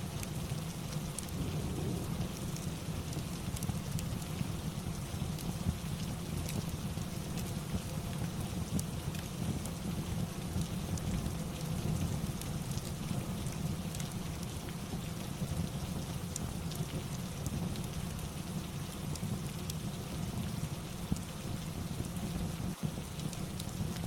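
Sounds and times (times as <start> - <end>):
rain hiss: 0.0 - 24.0
heavy low rumble: 1.2 - 4.6.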